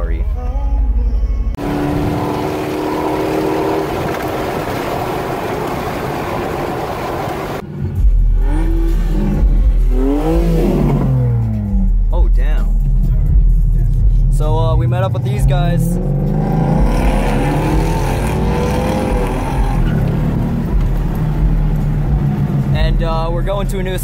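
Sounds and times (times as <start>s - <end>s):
car speeding past: 1.6s - 7.6s
engine and air rush: 1.6s - 11.8s.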